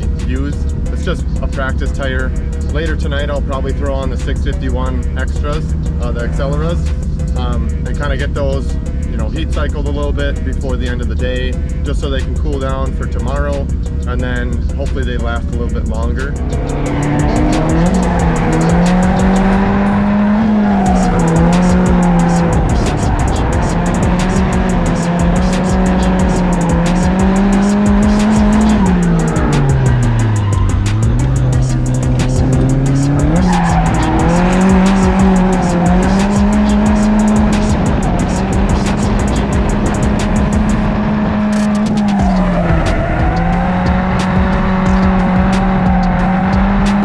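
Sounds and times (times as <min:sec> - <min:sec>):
car engine at high revs: 0:00.0 - 0:47.0
tyres squealing: 0:00.0 - 0:47.0.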